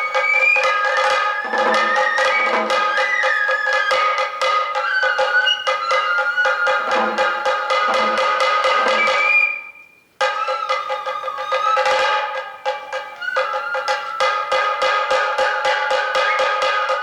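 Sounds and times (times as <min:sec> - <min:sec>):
fast stick drumming: 0:00.0 - 0:09.6, 0:10.2 - 0:17.0
bamboo flute melody: 0:00.0 - 0:17.0
deep drum beats: 0:00.8 - 0:03.3, 0:06.7 - 0:09.3.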